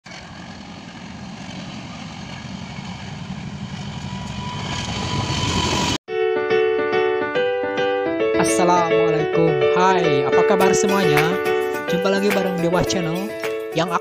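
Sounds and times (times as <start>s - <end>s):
locomotive engine rumble: 0.0s - 6.0s
train noise: 0.0s - 6.0s.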